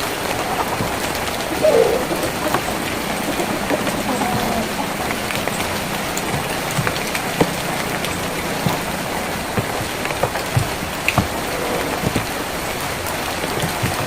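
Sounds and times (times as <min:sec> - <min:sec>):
rain on a tin roof: 0:00.0 - 0:14.0.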